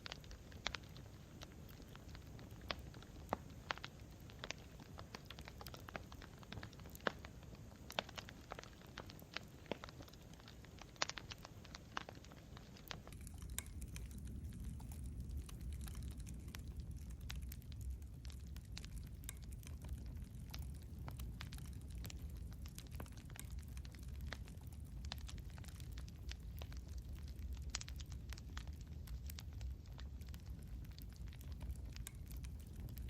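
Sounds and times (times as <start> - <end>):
campfire crackling: 0.0 - 33.0
low steady rumble: 12.8 - 33.0.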